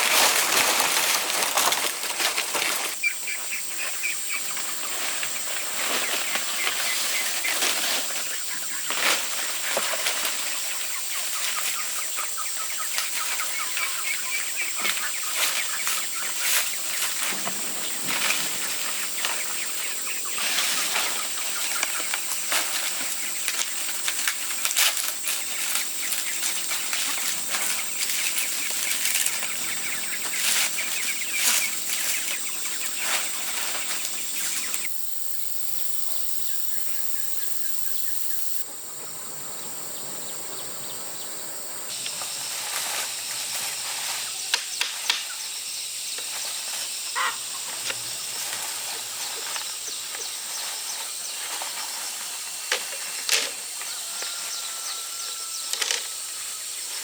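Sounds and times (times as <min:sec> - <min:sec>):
wings flapping: 0:00.0 - 0:35.0
poultry peeping: 0:00.2 - 0:57.0.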